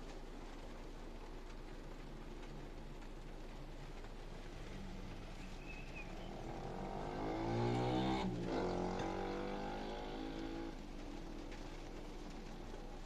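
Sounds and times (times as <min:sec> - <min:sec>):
low rumble of road noise: 0:00.0 - 0:13.0
vehicle passing close by: 0:06.3 - 0:10.8.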